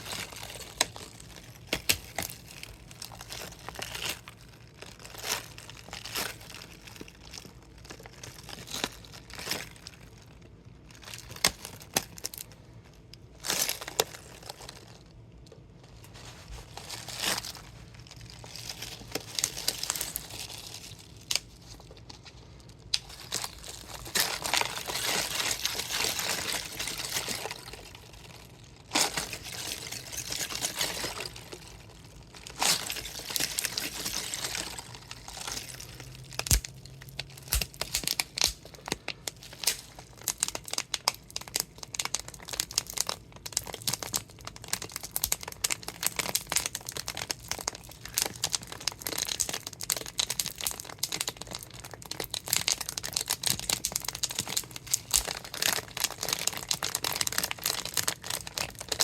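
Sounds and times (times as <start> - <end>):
plastic bottle crinkling: 13.1 - 59.0
water and ice sloshing: 23.1 - 36.9.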